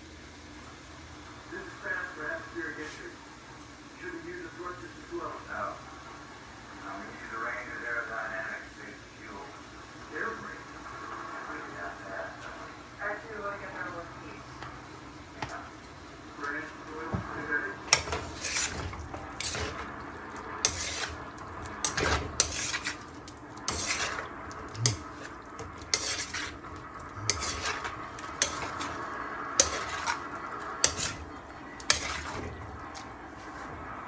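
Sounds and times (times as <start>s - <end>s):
utensil scraping food in pan: 17.8s - 33.2s
utensil clinking against pan: 23.7s - 26.6s, 27.2s - 29.0s, 29.6s - 30.2s, 30.8s - 32.5s.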